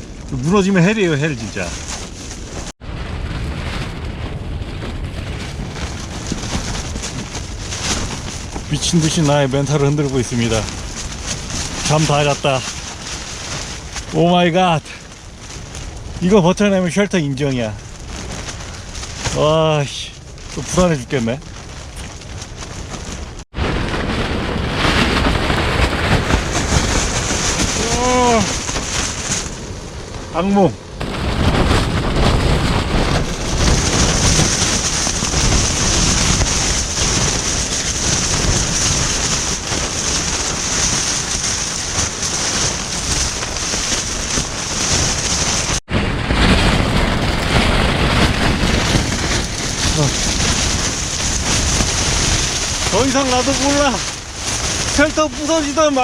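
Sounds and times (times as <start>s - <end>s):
strong wind gusting: 0.0s - 56.0s
tent fabric flapping: 0.0s - 56.0s
wind rumble on microphone: 0.0s - 56.0s
man groaning: 27.8s - 28.5s.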